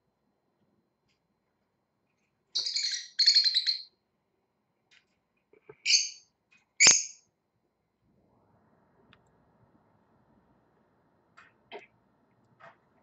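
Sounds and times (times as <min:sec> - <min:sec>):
parrot squawking: 0:02.6 - 0:03.9.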